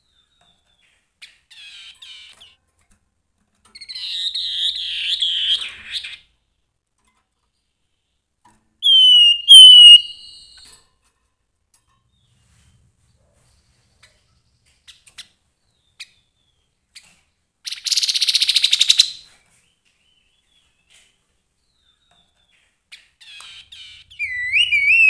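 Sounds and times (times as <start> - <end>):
bird whistles sliding downward: 8.8 - 10.6, 24.1 - 25.0
bird chattering and warbling: 8.8 - 10.7, 22.9 - 25.0.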